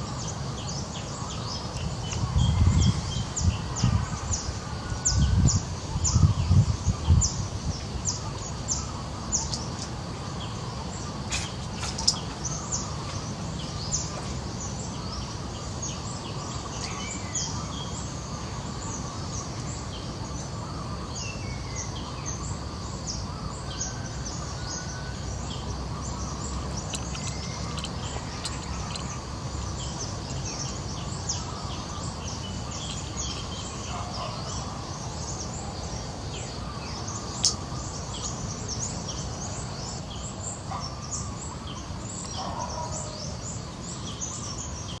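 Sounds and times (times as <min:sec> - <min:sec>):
low background noise: 0:00.0 - 0:45.0
birds chirping and calling: 0:25.6 - 0:35.6, 0:36.5 - 0:45.0
sharp click: 0:37.4 - 0:37.6.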